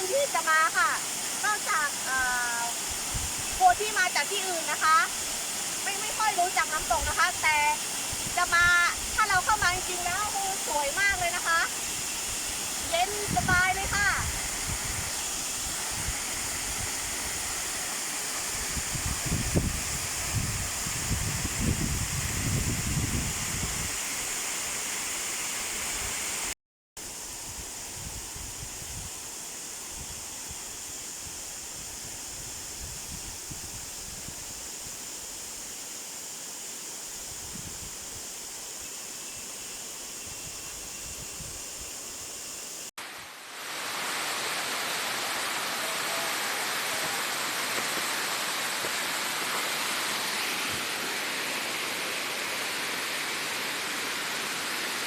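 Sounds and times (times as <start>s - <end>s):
waterfall rushing: 0.0s - 21.0s, 43.0s - 55.0s.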